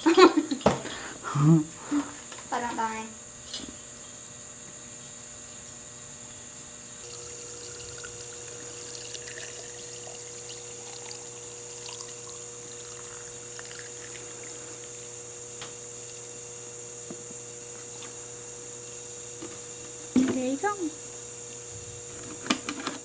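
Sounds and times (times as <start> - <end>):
liquid trickling into container: 7.0 - 15.0.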